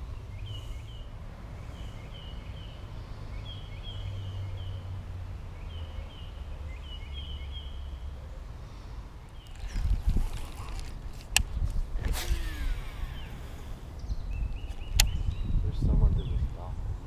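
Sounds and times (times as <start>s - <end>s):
bird chirping: 0.0s - 16.8s
low microphone rumble: 9.4s - 17.0s.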